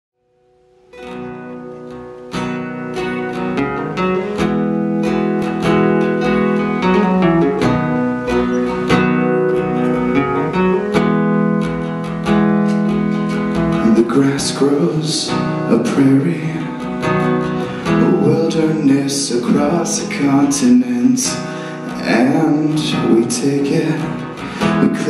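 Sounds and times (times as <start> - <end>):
acoustic guitar strumming chords: 0.2 - 25.0.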